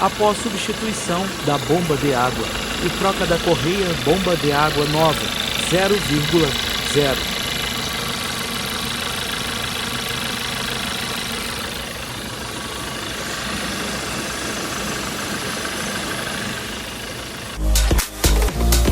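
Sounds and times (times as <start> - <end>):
car engine idling: 0.0 - 18.1
loud music: 17.6 - 18.9.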